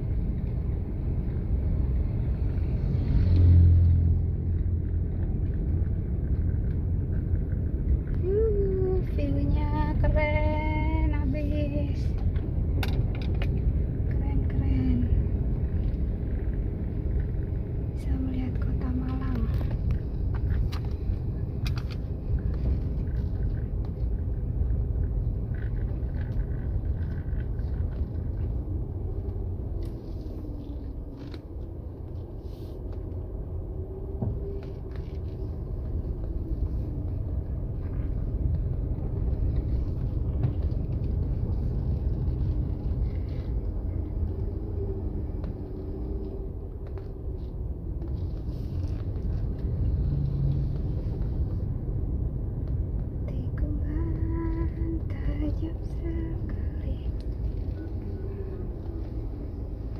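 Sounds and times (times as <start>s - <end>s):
vehicle engine rumbling: 0.0s - 59.9s.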